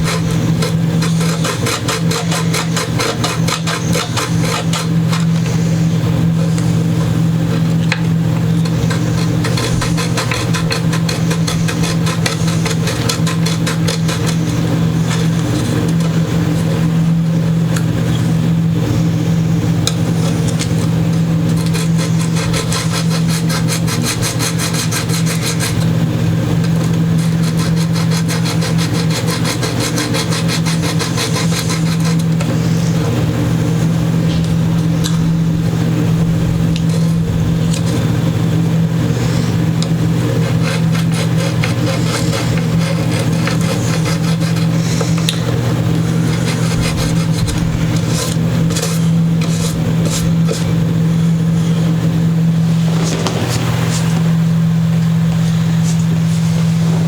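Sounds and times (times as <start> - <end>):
file rasping on metal fret: 0.0 - 7.7, 8.4 - 17.0, 20.1 - 33.1, 40.3 - 50.8
loud mechanical hum: 0.0 - 57.0.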